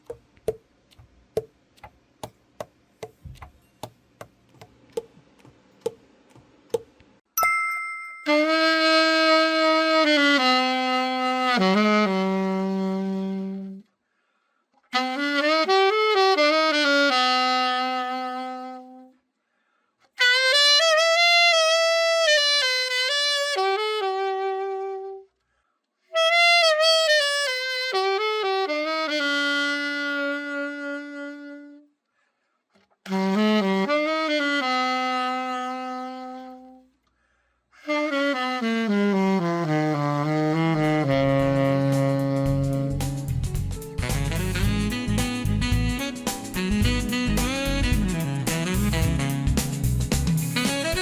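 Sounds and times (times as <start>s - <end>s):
solo alto saxophone melody: 8.3s - 13.9s, 14.9s - 19.2s, 20.1s - 25.4s, 26.0s - 32.0s, 33.0s - 37.0s, 37.8s - 51.0s.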